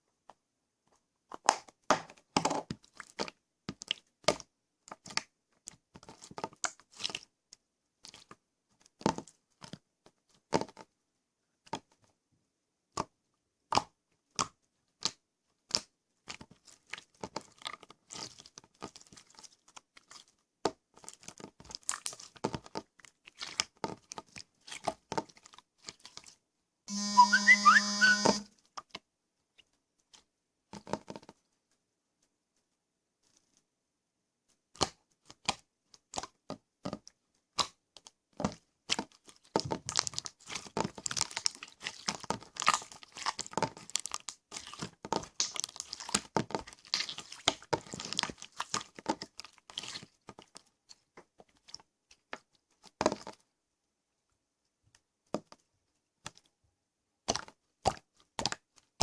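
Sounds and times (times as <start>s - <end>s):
buzzing tone: 26.9s - 28.5s
slime clicking and popping: 37.5s - 50.6s.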